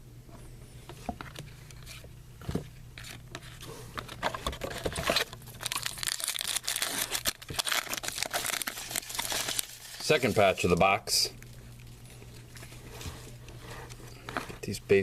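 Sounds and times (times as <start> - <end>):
card pack wrapper crinkling: 3.0 - 12.8.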